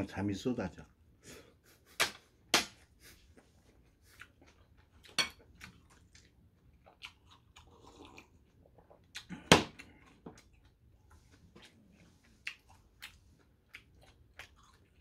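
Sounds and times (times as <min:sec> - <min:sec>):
person chewing: 0:02.8 - 0:15.0.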